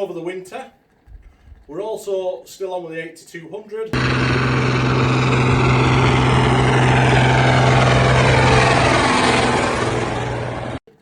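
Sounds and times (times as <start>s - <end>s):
tractor engine running: 4.0s - 10.8s.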